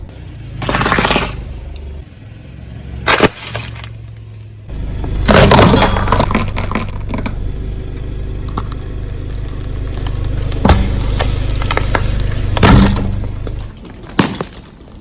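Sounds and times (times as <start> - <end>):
car engine running: 3.8 - 14.1
tyre crushing objects: 5.0 - 7.5, 8.5 - 15.0.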